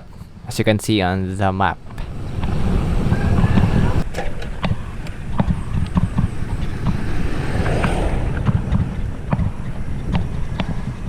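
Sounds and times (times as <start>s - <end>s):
road noise: 0.0s - 11.0s
wind rumble on microphone: 1.8s - 11.0s.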